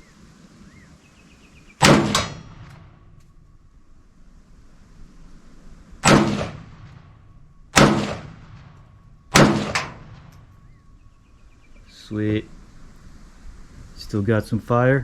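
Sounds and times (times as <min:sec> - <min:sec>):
rifle shots with echo: 0:01.8 - 0:03.2, 0:06.0 - 0:10.7.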